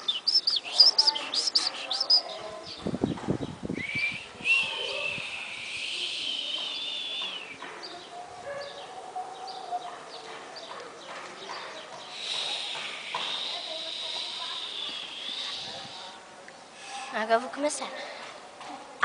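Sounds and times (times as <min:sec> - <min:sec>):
birds chirping and calling: 0:00.0 - 0:17.1.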